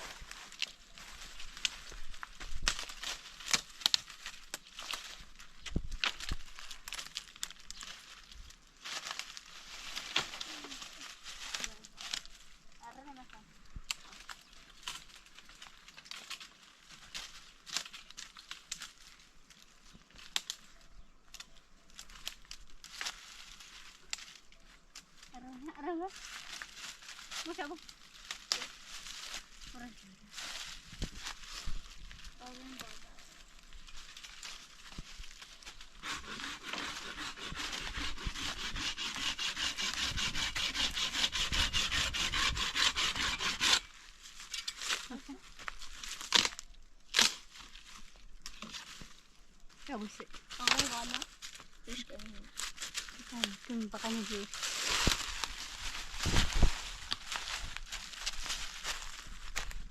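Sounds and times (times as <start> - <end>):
dry material crinkling: 0.0 - 36.0, 43.8 - 59.9
hand saw cutting wood: 35.9 - 43.9.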